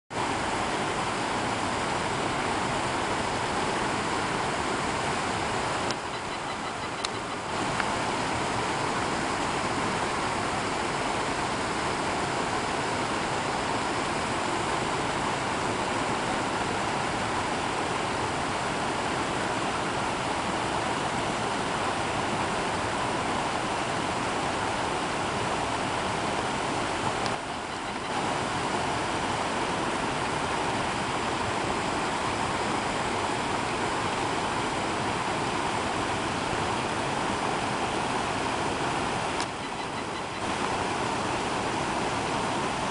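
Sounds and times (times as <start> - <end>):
running water rushing: 0.1 - 42.9.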